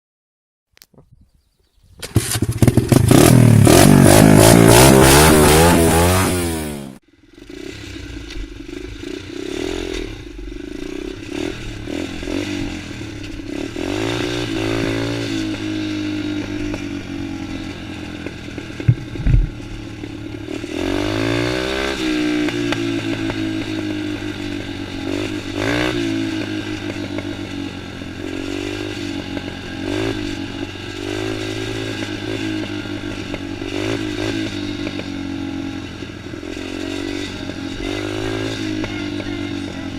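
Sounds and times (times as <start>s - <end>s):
motocross bike engine revving: 2.0s - 39.9s
sharp knocks: 18.8s - 19.8s.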